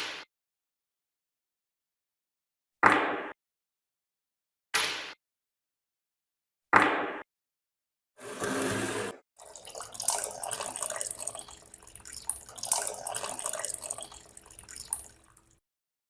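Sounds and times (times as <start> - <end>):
running water splashing: 8.2 - 15.6.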